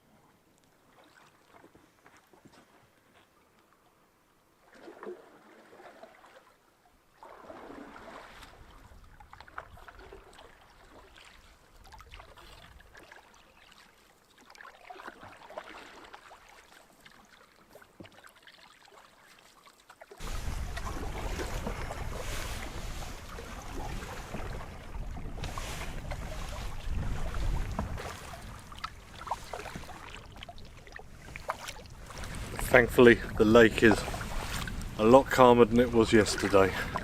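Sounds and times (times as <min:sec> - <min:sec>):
paddle strokes in water: 0:00.2 - 0:04.0, 0:04.6 - 0:37.0
wind buffeting microphone: 0:20.2 - 0:37.0.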